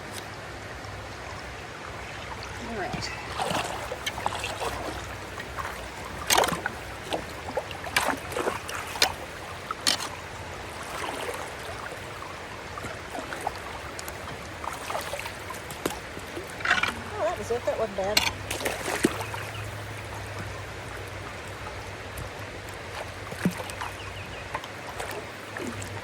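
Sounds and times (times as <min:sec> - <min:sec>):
water running through a culvert: 0:00.0 - 0:26.0
water splashing and sloshing: 0:00.0 - 0:26.0.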